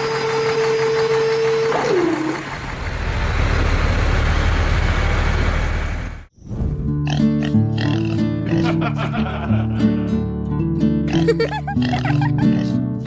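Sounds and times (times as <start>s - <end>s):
truck engine rumble: 0.0s - 6.3s.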